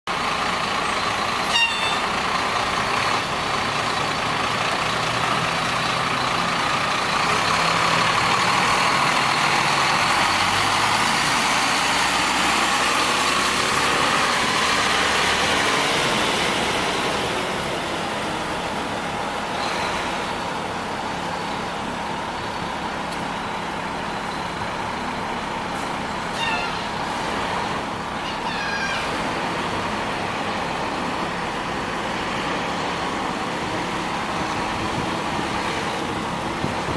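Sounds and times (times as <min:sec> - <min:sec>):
heavy truck engines running: 0:00.1 - 0:36.9
short high squeaks: 0:01.5 - 0:02.1, 0:26.3 - 0:27.0.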